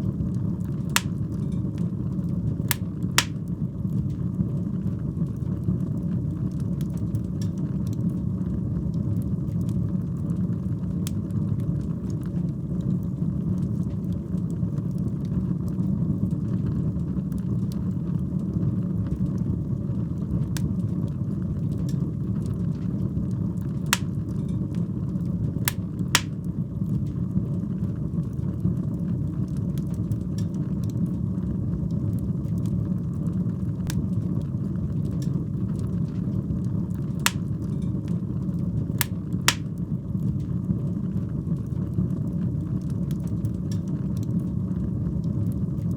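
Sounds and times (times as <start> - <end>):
fire flames rumbling: 0.0 - 15.7
fire crackling and popping: 0.3 - 4.2, 24.0 - 24.5, 25.6 - 26.6, 37.3 - 37.9, 39.0 - 40.0.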